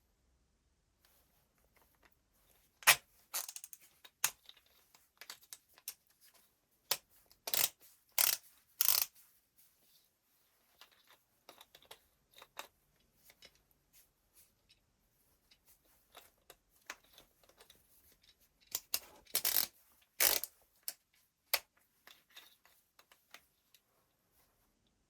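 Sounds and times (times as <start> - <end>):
small parts clicking and scraping: 2.8 - 9.2, 14.6 - 23.8.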